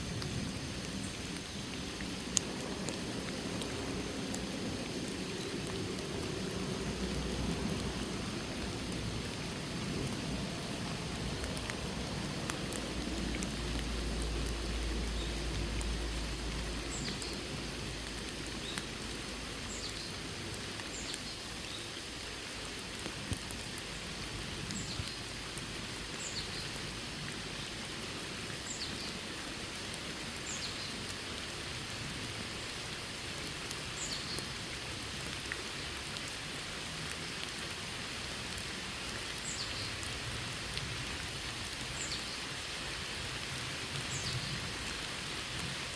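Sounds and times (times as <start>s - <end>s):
steady rain falling: 0.0s - 45.9s
drip ticks: 0.2s - 28.0s, 33.3s - 40.9s.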